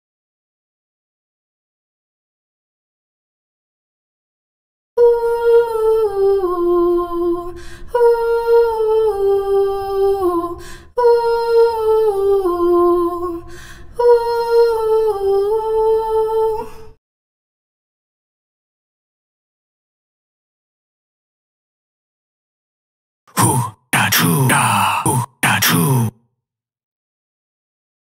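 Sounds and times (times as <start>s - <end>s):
high-pitched voice humming: 23.3s - 26.1s.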